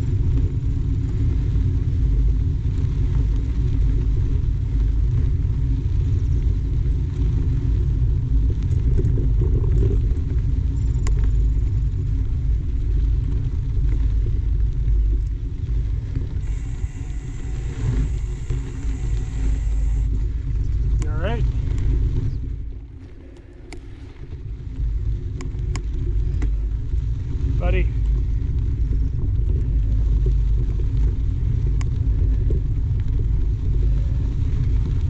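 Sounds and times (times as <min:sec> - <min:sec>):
bike tyres on trail: 0:15.5 - 0:20.2
wind buffeting microphone: 0:15.6 - 0:35.0.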